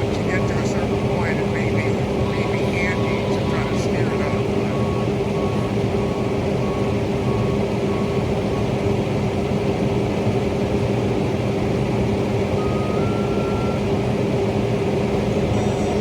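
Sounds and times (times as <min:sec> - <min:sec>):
vehicle engine droning: 0:00.0 - 0:16.0
short electronic beeps: 0:12.6 - 0:13.9.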